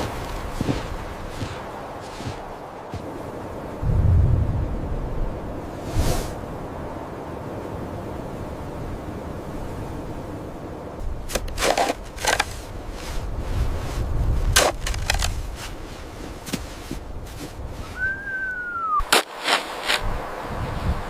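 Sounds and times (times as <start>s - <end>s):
low wind rumble: 0.0s - 21.0s
sharp cracks and snaps: 14.5s - 15.4s
short rising and falling whistle: 17.8s - 19.1s.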